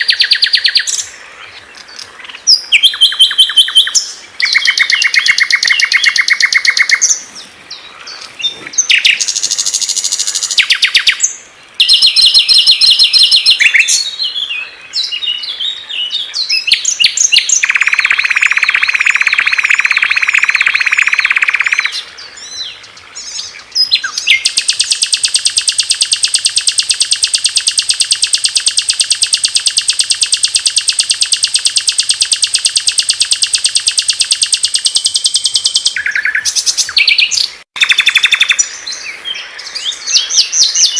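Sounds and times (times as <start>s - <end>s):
long fast bird trill: 0.0s - 1.1s, 2.2s - 7.2s, 8.8s - 14.4s, 16.5s - 22.0s, 23.8s - 38.7s
low buzzing bird song: 0.0s - 40.9s
songbirds chirping and trilling: 0.0s - 40.9s.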